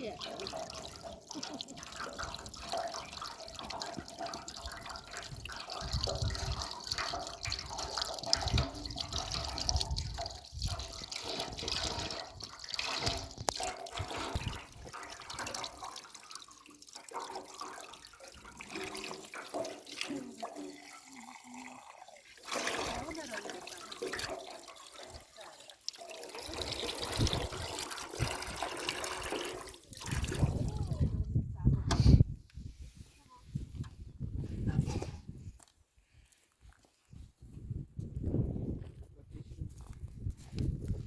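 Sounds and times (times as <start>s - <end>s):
water running and splashing: 0.0s - 31.1s.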